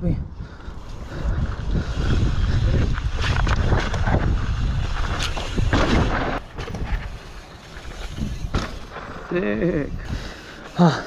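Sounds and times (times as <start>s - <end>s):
wind rumble on microphone: 0.0s - 7.2s
bike landing thuds: 3.0s - 7.2s, 7.8s - 9.2s.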